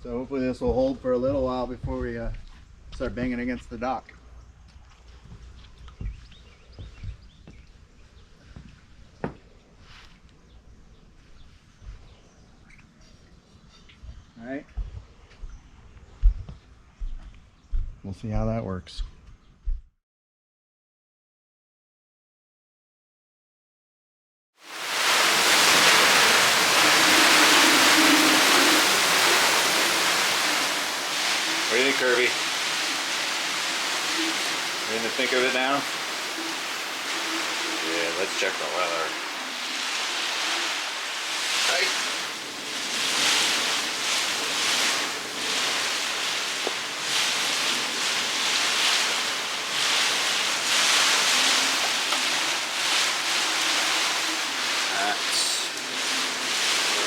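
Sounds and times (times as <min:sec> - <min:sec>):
heavy rain pouring: 0:24.6 - 0:57.0
storm wind: 0:24.7 - 0:57.0.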